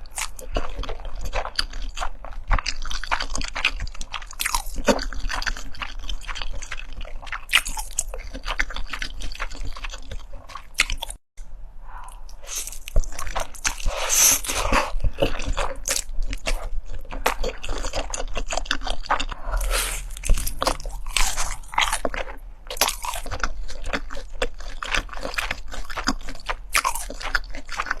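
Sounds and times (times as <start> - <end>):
crunching bites of fried chicken: 0.0 - 11.2, 20.1 - 28.0
wet chewing: 0.0 - 11.2, 12.0 - 28.0.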